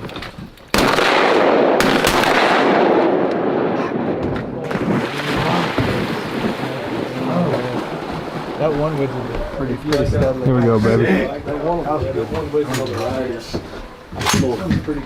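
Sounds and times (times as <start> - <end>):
rumble of shots and echo: 0.7 - 7.0
shotgun shots: 0.7 - 7.0.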